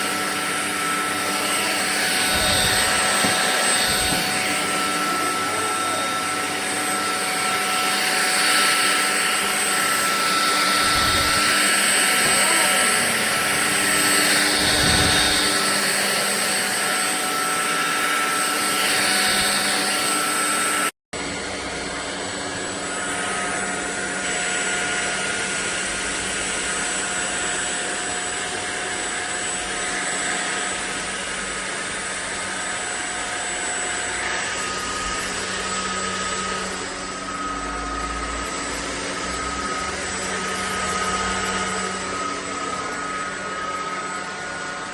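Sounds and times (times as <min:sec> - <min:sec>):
stick vacuum running: 0:00.0 - 0:44.9.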